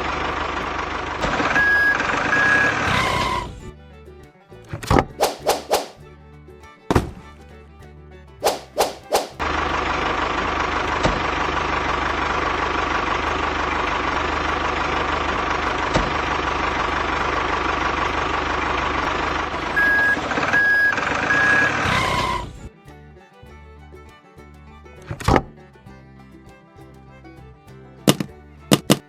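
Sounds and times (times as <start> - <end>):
truck engine running: 0.0 - 29.0
reversing beeps: 1.6 - 3.4, 19.8 - 21.7.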